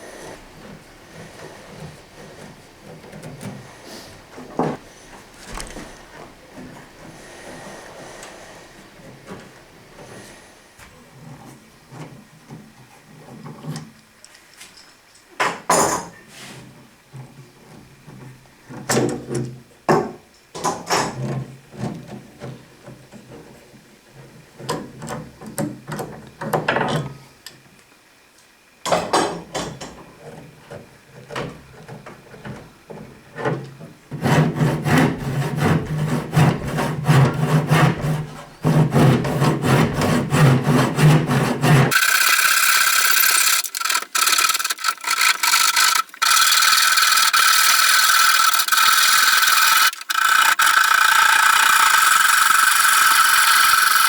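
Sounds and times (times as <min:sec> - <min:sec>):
wood rasping by hand: 0:00.0 - 0:09.4, 0:34.1 - 0:54.0
power tool whining: 0:39.6 - 0:54.0.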